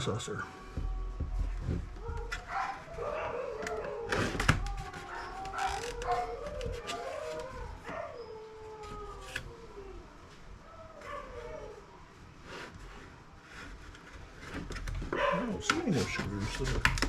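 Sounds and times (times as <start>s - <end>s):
dog howling: 0.0s - 12.0s.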